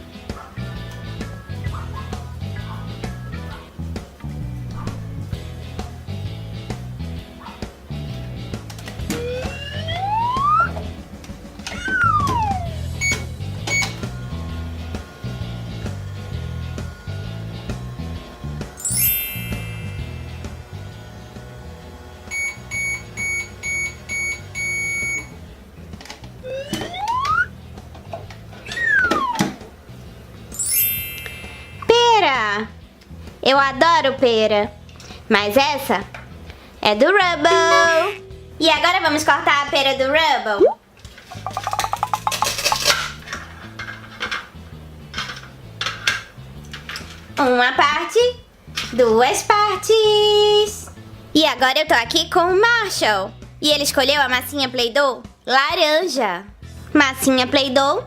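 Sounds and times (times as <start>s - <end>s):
light background music: 0.0s - 58.0s
toy microwave beeping: 11.8s - 14.1s, 22.3s - 25.4s, 26.4s - 27.5s
toy knife clicking and clattering: 41.4s - 43.3s.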